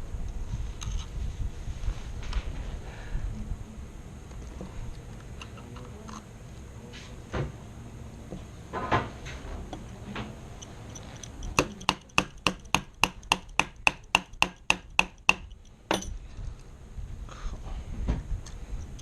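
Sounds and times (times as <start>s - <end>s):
metallic clicks of rifle parts: 10.6s - 12.4s.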